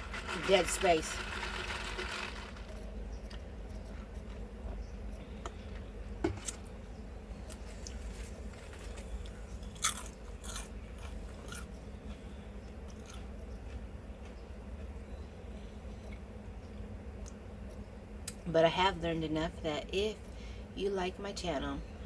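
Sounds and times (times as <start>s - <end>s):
steady low hum: 0.0s - 22.0s
chewing with crisp crunches: 2.1s - 6.7s, 7.3s - 16.4s.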